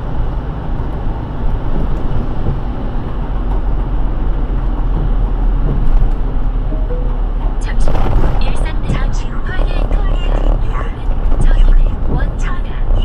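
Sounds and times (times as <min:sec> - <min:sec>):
low road rumble: 0:00.0 - 0:13.0.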